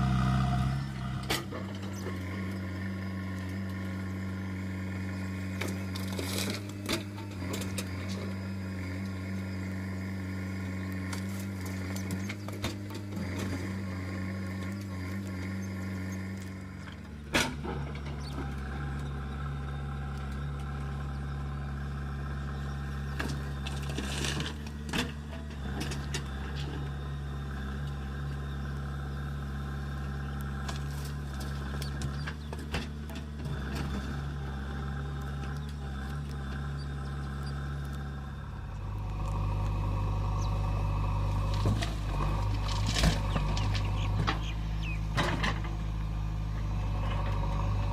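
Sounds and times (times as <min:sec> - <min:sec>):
backhoe diesel engine running: 0:00.0 - 0:47.9.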